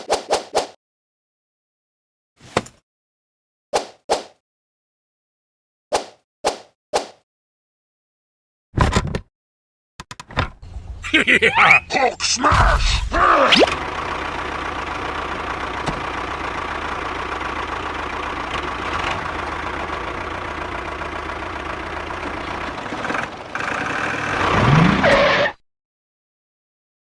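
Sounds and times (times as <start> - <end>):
mini tractor engine running: 13.7 - 24.6.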